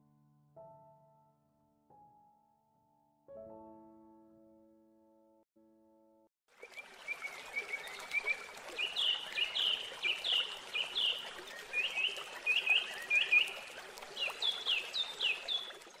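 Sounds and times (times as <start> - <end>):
small songbird singing: 7.7 - 13.6, 14.2 - 15.8.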